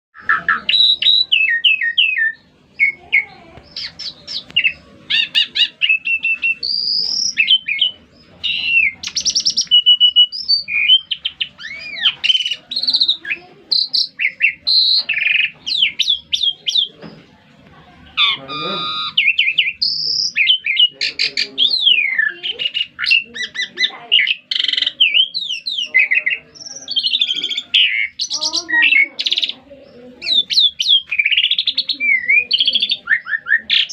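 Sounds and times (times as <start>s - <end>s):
songbird singing whistles and trills: 0.2s - 17.2s, 18.2s - 33.9s.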